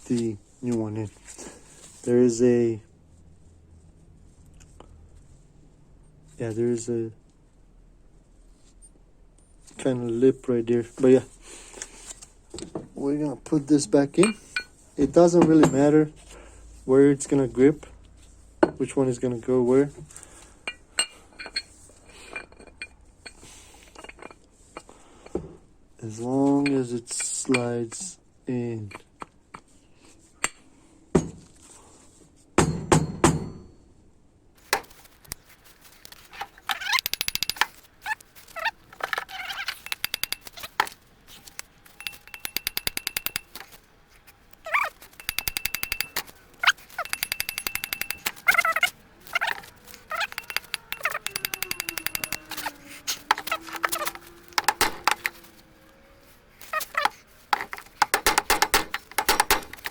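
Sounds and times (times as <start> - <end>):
rapid clicks: 36.9 - 38.3, 39.7 - 40.8, 41.6 - 43.7, 45.1 - 55.4.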